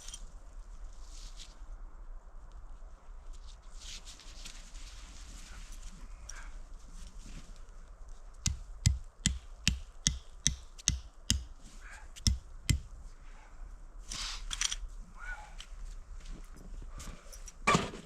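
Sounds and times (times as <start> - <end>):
sharp knocks with dull thuds: 8.4 - 11.6, 12.2 - 12.9.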